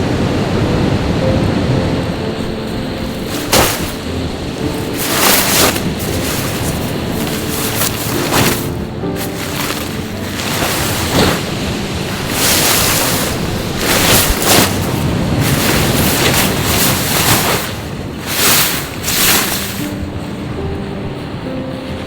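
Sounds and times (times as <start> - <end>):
wind buffeting microphone: 0.0 - 22.0
sea waves washing onto shore: 2.2 - 20.2.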